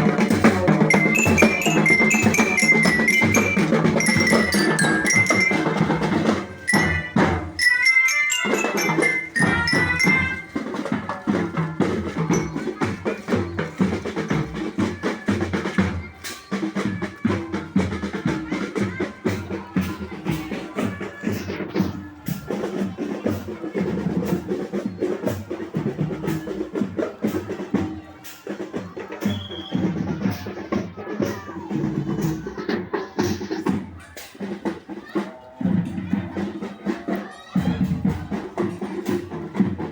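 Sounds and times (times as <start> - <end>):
snare and bass drums: 0.0 - 39.9
mallet bell notes: 0.7 - 11.4.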